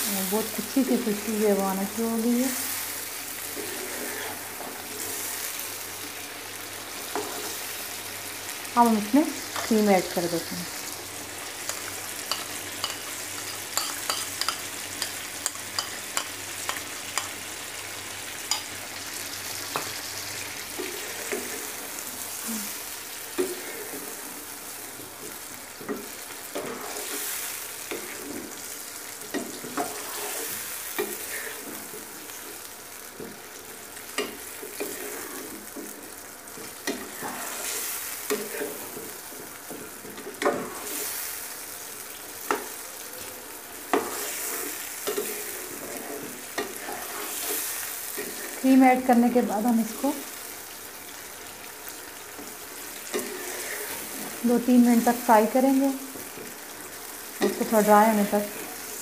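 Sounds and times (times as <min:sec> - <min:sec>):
chicken sizzling in sauce: 0:00.0 - 0:59.0
spatula scraping and knocking pan: 0:07.0 - 0:07.6, 0:11.6 - 0:17.4, 0:24.9 - 0:41.1, 0:43.9 - 0:49.1, 0:52.1 - 0:54.4.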